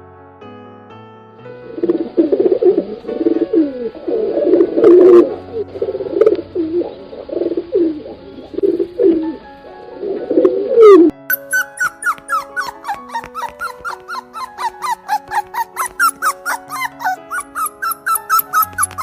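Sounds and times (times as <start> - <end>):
soft music: 0.0 - 19.0
pigeons cooing: 1.8 - 9.4, 12.1 - 19.0
short high squeaks: 11.3 - 19.0.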